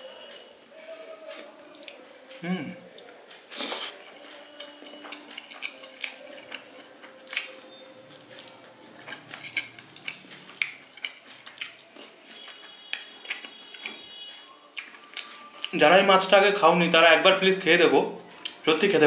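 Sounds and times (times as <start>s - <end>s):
wet chewing: 2.9s - 15.8s
lip smacks and mouth clicks: 8.4s - 13.9s.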